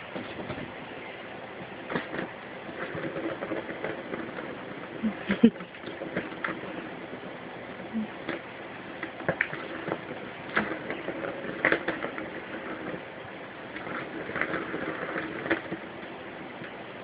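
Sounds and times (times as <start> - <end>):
scratches and light knocks: 0.0 - 0.8, 1.5 - 13.1, 13.7 - 16.8
steady low hum: 0.0 - 17.0.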